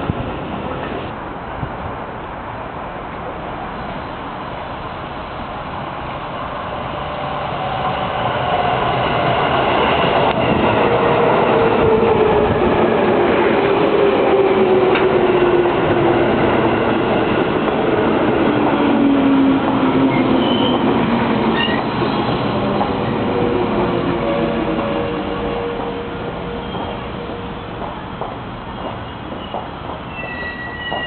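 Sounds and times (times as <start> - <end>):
falling train whine: 0.0 - 31.0
train wheel rumble: 4.9 - 31.0
brake squeal: 21.6 - 22.2, 26.5 - 27.7, 28.7 - 31.0.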